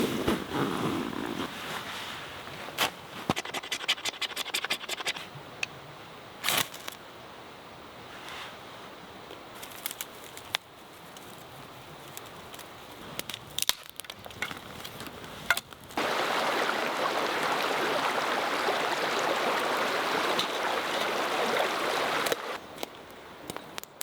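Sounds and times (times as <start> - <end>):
scratching and scraping: 3.3 - 5.3.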